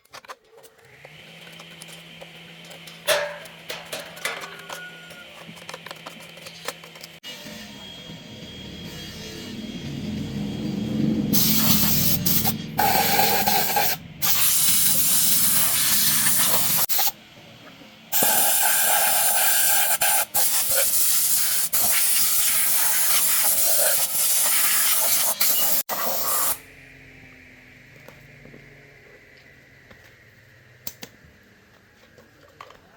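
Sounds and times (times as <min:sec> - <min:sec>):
compressed air hissing: 0:11.3 - 0:17.1, 0:18.2 - 0:26.6.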